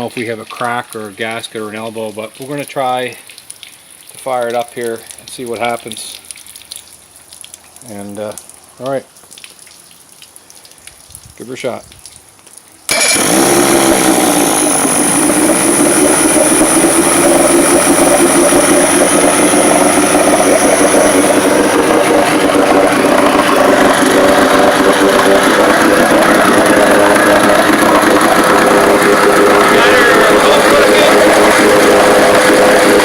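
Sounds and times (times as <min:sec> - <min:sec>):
outboard motor running: 0:12.9 - 0:33.0.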